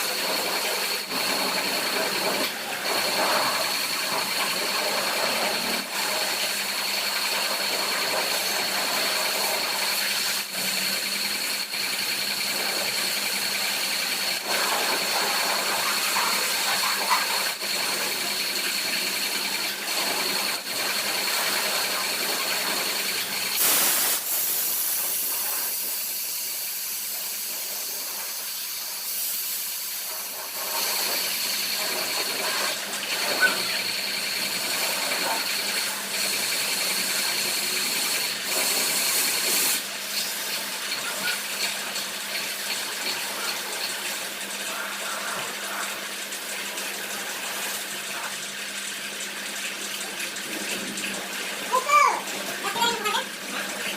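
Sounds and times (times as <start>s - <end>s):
pressure washer spraying water: 0.0s - 53.9s.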